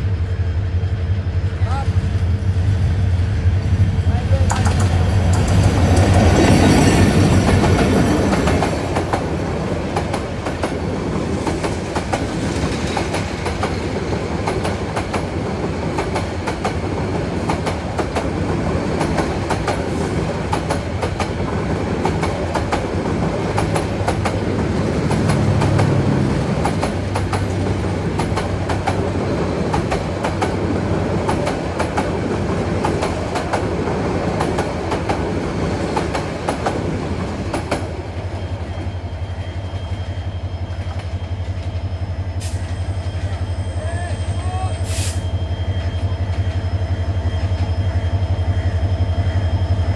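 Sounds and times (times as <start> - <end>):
train wheels clicking over rail joints: 4.3 - 40.0.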